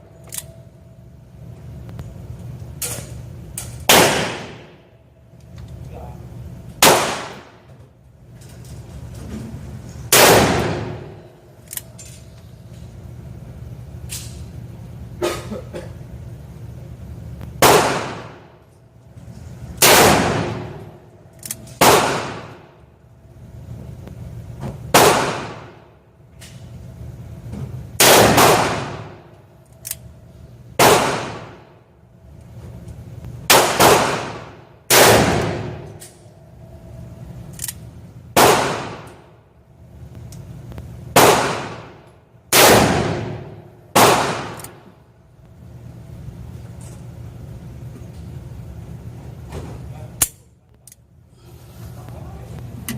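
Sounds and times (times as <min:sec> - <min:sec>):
gunshots echoing: 0:03.9 - 0:04.8, 0:06.8 - 0:07.6, 0:10.1 - 0:11.2, 0:17.6 - 0:18.5, 0:19.8 - 0:21.0, 0:21.8 - 0:22.7, 0:24.9 - 0:25.8, 0:28.0 - 0:29.2, 0:30.8 - 0:31.7, 0:33.5 - 0:36.0, 0:38.4 - 0:39.3, 0:41.1 - 0:44.8.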